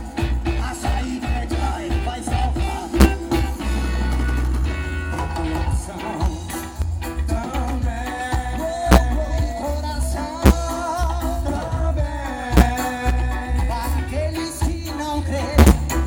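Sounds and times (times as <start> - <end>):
heavy bass line: 0.0 - 16.0
reggae band playing: 0.0 - 16.0
sharp drum hit: 3.0 - 4.6, 8.9 - 9.2, 12.6 - 13.0, 15.6 - 16.0.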